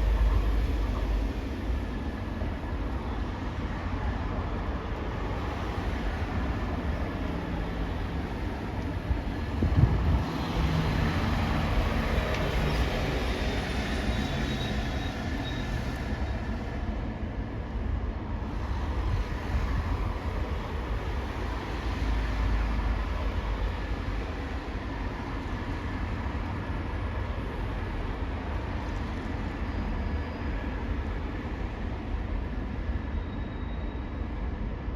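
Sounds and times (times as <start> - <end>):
heavy engines rumbling: 0.0 - 25.7.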